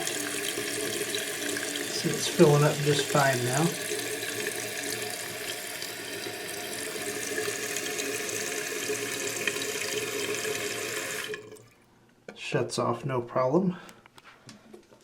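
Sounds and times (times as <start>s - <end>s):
toilet tank refilling: 0.0s - 11.8s.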